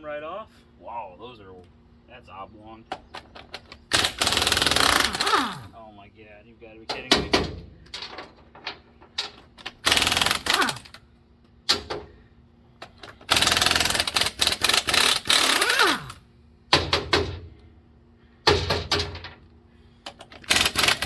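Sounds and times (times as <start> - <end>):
impact wrench hammering: 3.9 - 5.6, 9.6 - 10.9, 13.2 - 17.5, 18.5 - 19.3, 20.4 - 21.0.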